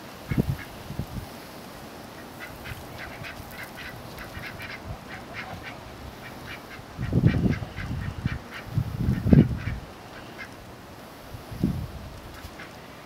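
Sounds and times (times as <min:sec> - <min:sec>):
ducks quacking softly: 0:02.2 - 0:10.6, 0:12.3 - 0:12.8.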